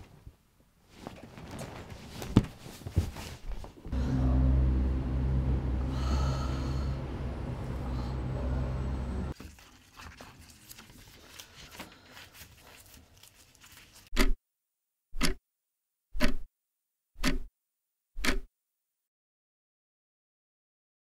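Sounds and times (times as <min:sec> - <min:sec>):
clock ticking: 0:17.2 - 0:17.5.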